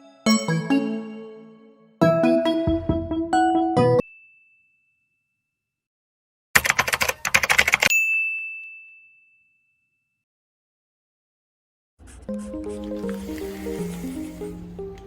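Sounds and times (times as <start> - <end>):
music: 0.0 - 4.0, 12.0 - 15.0
typewriter keystrokes: 6.6 - 7.9.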